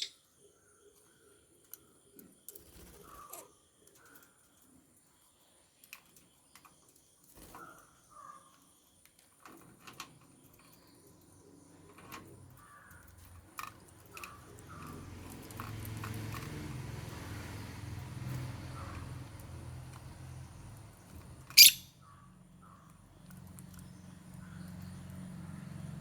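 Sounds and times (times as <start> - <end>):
lovebirds chirping: 0.0 - 1.3, 20.5 - 22.1.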